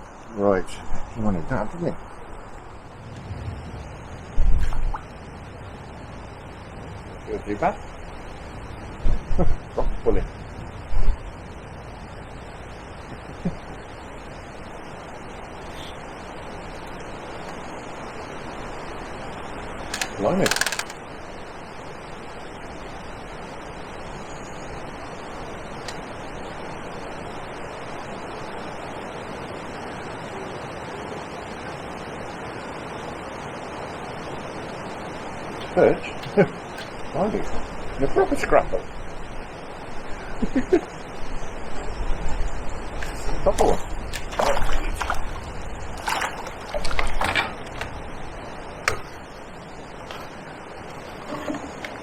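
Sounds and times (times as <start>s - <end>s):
wind on microphone: 2.6s - 6.3s
water splashing and sloshing: 43.6s - 52.0s
water lapping: 43.8s - 48.4s.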